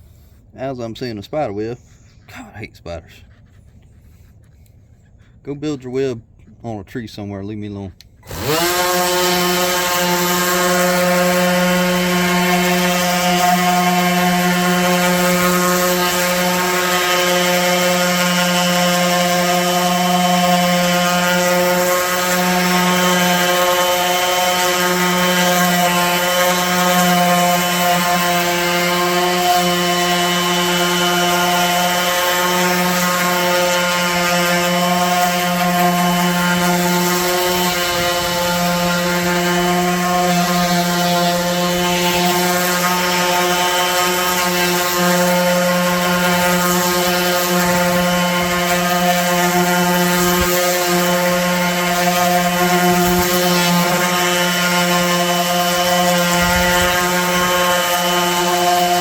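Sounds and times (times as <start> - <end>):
electric orbital sander running: 8.0 - 59.0.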